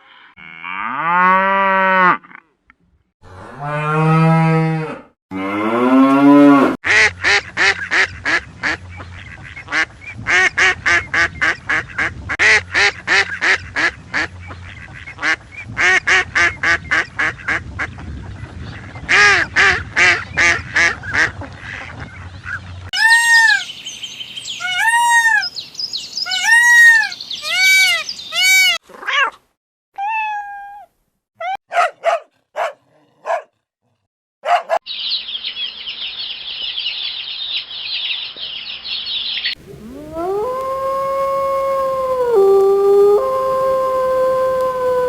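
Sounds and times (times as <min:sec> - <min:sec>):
duck quacking: 0:06.9 - 0:17.6
canine howling: 0:39.6 - 0:45.0.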